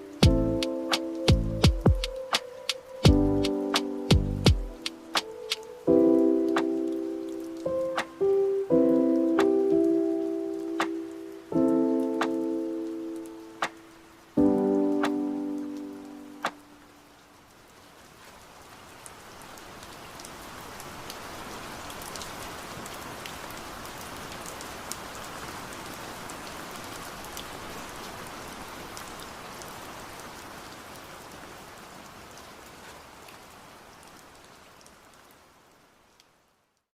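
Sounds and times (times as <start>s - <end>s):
steady rain falling: 0.0s - 36.9s
raindrop ticks: 0.1s - 5.7s.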